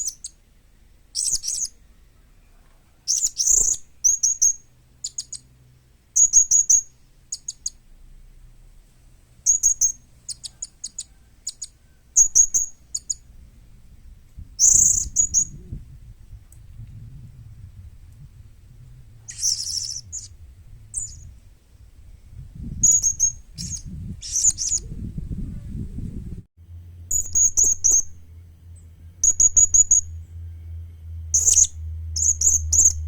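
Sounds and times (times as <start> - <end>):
parrot high thin chirps: 19.3 - 20.3.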